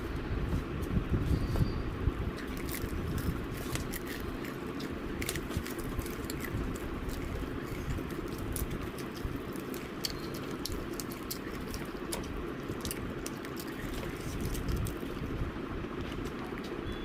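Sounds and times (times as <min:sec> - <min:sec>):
crunchy clicks: 0:02.3 - 0:15.4
wet chewing: 0:02.3 - 0:16.8.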